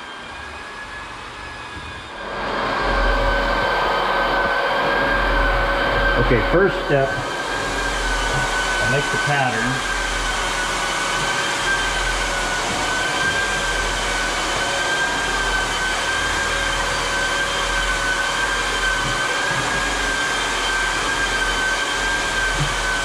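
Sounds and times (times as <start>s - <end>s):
electric blower motor whining: 0.0s - 23.0s.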